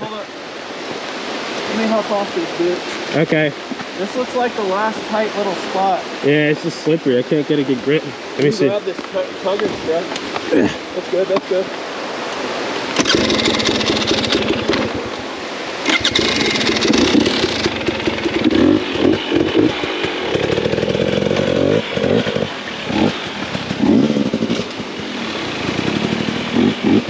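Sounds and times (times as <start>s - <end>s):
dirt bike engine revving: 13.0s - 15.2s, 15.8s - 27.0s.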